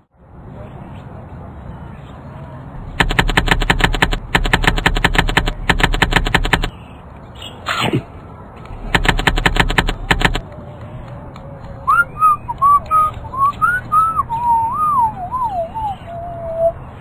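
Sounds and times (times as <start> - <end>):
rapid-fire sharp bangs: 2.9 - 6.7, 8.8 - 10.4.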